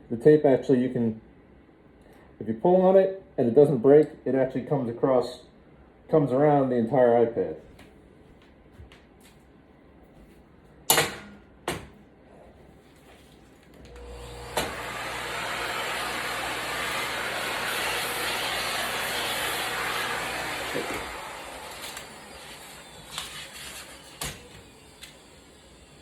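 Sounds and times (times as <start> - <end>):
vacuum cleaner running: 13.8 - 26.0.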